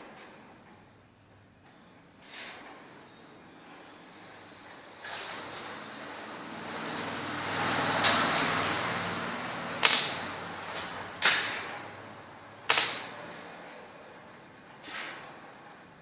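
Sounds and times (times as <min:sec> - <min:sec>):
game pieces clicking on board: 0:09.8 - 0:10.2, 0:12.7 - 0:13.1.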